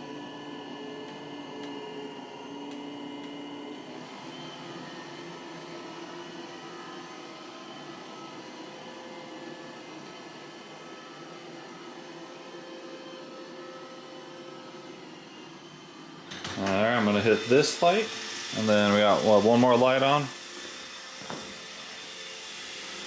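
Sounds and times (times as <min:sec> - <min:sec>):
robot vacuum motor running: 0:16.6 - 0:23.0.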